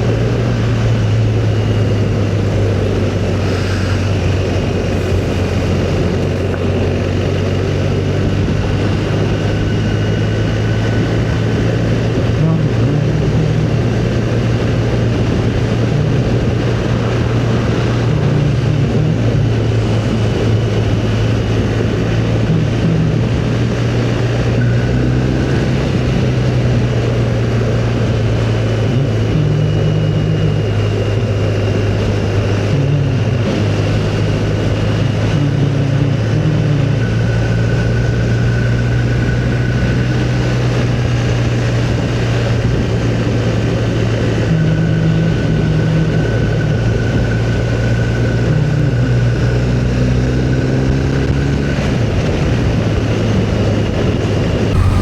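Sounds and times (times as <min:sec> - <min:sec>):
wind noise: 0:00.0 - 0:27.4
motorcycle engine droning: 0:00.0 - 0:32.4, 0:54.7 - 0:55.0.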